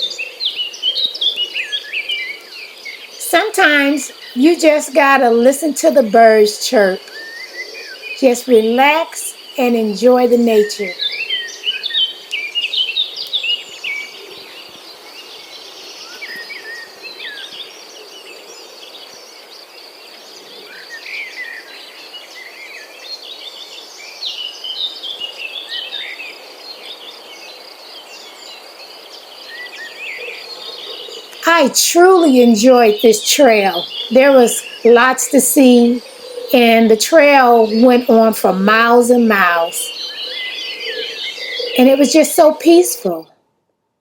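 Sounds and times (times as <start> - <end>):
birds chirping and calling: 0.0 - 14.7, 29.4 - 43.2.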